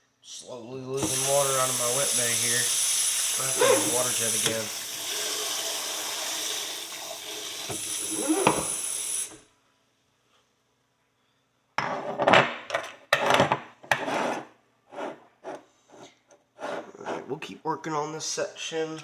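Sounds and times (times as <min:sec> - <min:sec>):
water jet spraying: 0:01.0 - 0:09.4
metal pick scraping horseshoe: 0:03.6 - 0:04.6.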